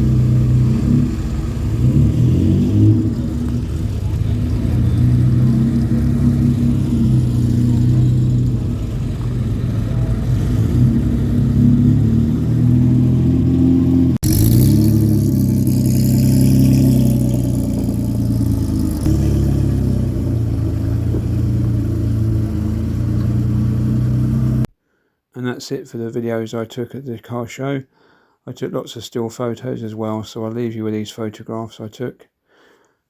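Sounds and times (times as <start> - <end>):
car engines pulling away: 0.0 - 24.7
engine revving with hiss: 0.0 - 24.7.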